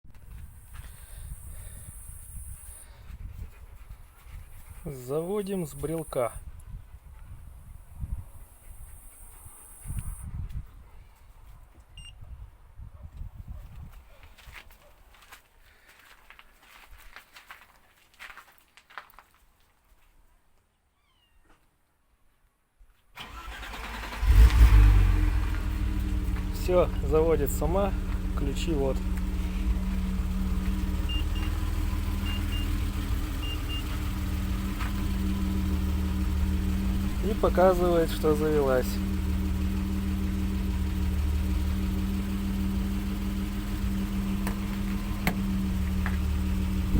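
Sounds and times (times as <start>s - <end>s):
starter motor cranking: 23.2s - 39.8s
car engine revving and idling: 23.2s - 46.9s.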